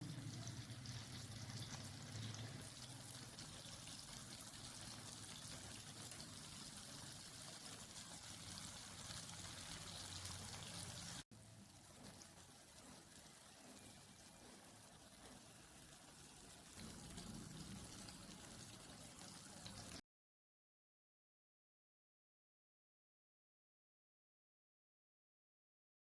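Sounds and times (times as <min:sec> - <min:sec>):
meat sizzling on a hot plate: 0:00.0 - 0:20.0.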